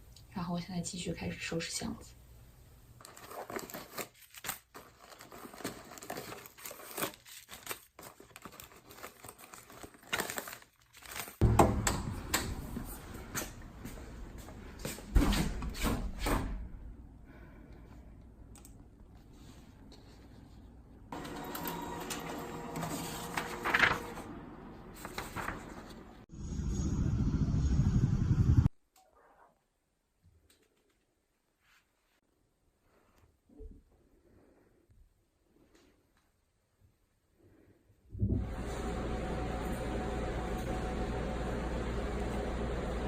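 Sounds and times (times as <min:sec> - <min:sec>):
low rumble: 0:26.3 - 0:28.7.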